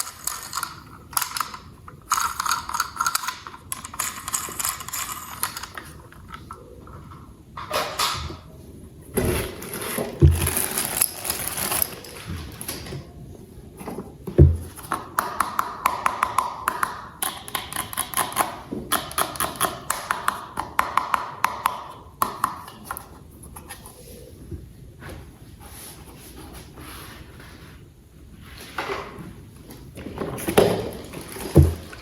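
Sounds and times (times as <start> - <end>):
toy parts rustling and scraping: 0.0 - 8.0, 9.2 - 13.0, 30.0 - 32.0
knocks: 14.4 - 14.8.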